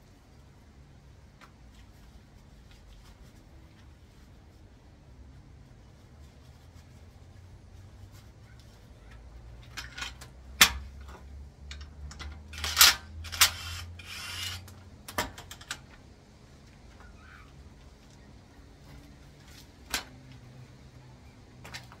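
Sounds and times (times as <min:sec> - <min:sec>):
metal tools clinking and knocking: 0:09.6 - 0:15.9.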